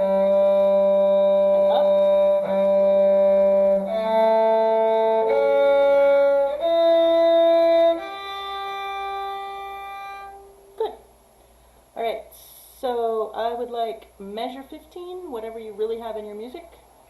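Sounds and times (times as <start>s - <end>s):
violin playing long held notes: 0.0s - 10.6s.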